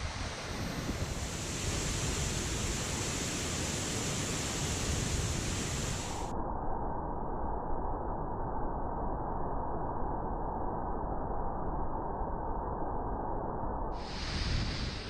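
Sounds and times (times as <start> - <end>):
waterfall rushing: 0.0 - 6.3.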